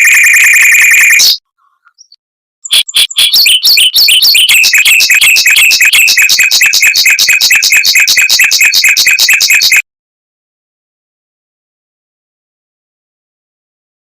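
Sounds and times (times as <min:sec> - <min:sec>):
mockingbird singing rapid roll: 0:00.0 - 0:09.8.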